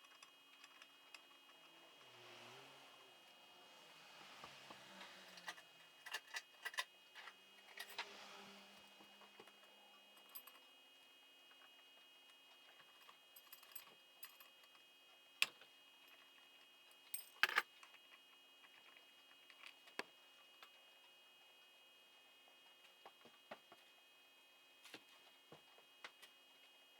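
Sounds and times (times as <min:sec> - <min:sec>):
faint steady hum: 0:00.0 - 0:26.9.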